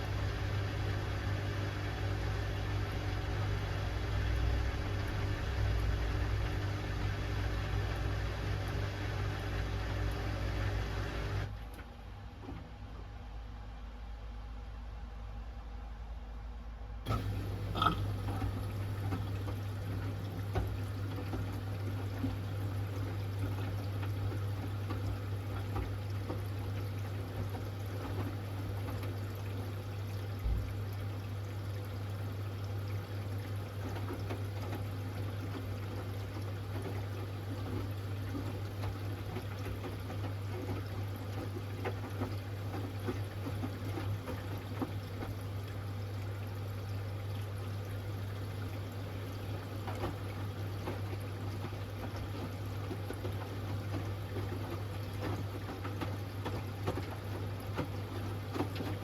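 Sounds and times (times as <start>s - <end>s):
washing machine drain pump hum: 0.0s - 59.0s
water gurgling out: 17.1s - 29.4s.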